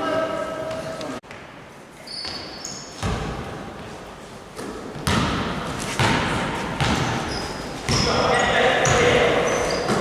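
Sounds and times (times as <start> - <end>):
basketballs bouncing on gym floor: 3.0 - 3.5, 4.9 - 10.0.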